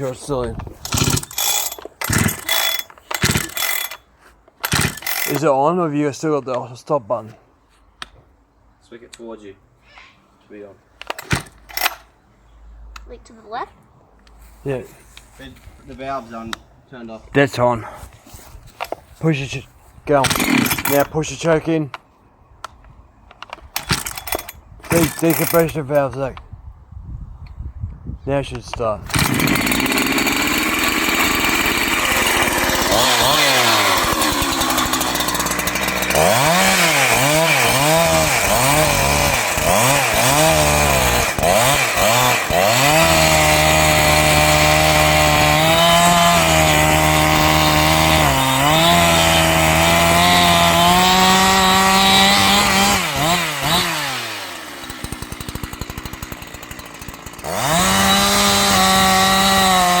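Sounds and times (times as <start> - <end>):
two-stroke chainsaw revving: 0.8 - 4.0, 4.6 - 5.5, 20.2 - 21.1, 23.9 - 25.8, 29.0 - 60.0.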